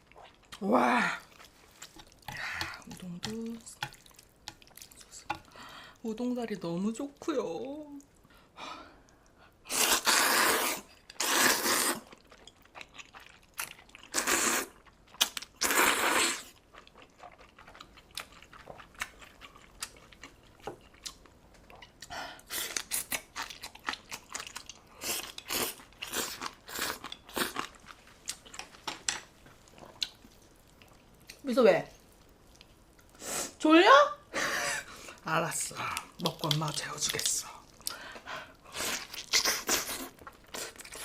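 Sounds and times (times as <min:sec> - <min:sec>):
loud slurping: 0:09.7 - 0:12.0.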